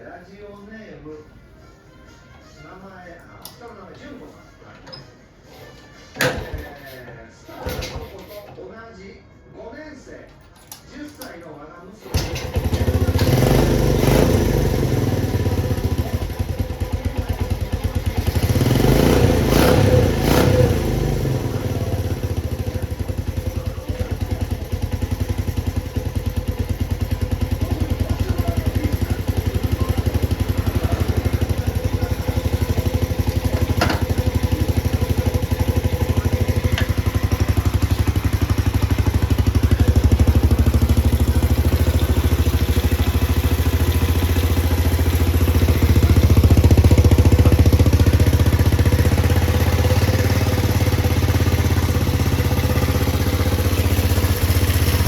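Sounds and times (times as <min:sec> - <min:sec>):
motorcycle engine idling: 0:12.1 - 0:55.0.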